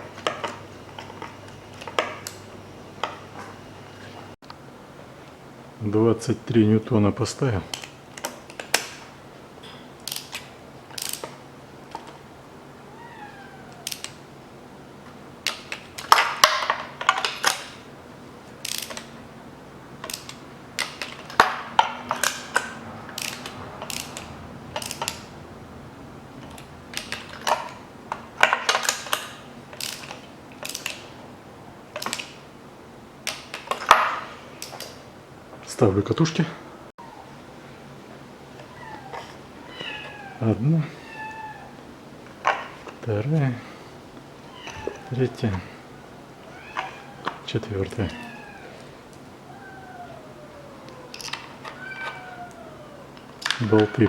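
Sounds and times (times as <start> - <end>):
metal taps and clinks: 9.6 - 10.4
ratchet wrench clicking: 10.0 - 10.4, 11.0 - 11.3, 18.6 - 19.0, 22.1 - 25.3.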